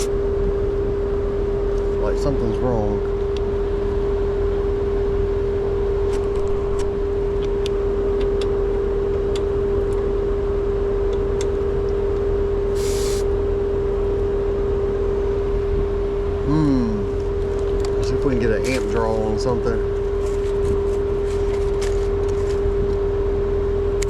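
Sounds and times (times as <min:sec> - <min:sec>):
air conditioning unit humming: 0:00.0 - 0:24.0
brief hiss: 0:12.7 - 0:13.3.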